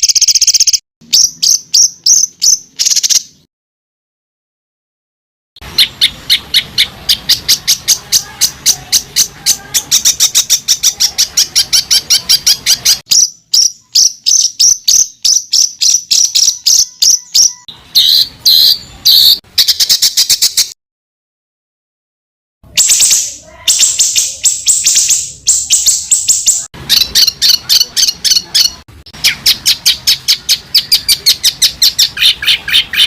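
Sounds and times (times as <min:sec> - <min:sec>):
songbird calls: 0:05.7 - 0:20.7, 0:22.7 - 0:33.0.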